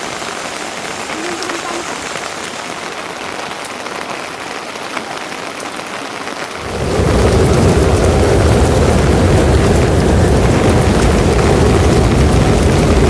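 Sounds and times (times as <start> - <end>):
steady rain hiss: 0.0 - 13.0
loud low rumble: 6.6 - 13.0.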